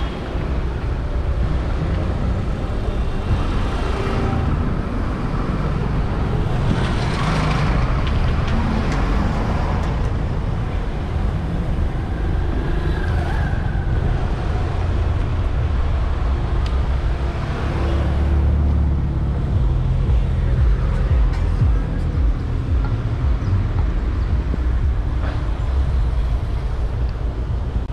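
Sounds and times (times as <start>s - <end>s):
car engines passing: 0.0s - 27.9s
heavy low rumble: 18.3s - 27.9s.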